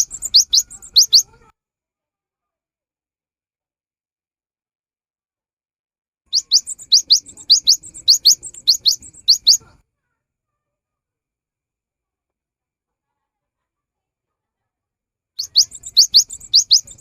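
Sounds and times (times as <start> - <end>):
bird singing rising notes: 0.0 - 1.3, 6.3 - 9.7, 15.4 - 17.0.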